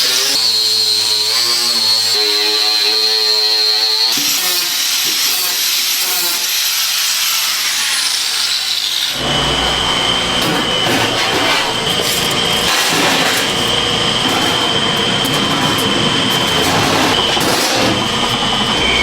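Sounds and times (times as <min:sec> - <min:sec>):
power tools running: 0:00.0 - 0:19.0
steady high whine: 0:09.2 - 0:19.0.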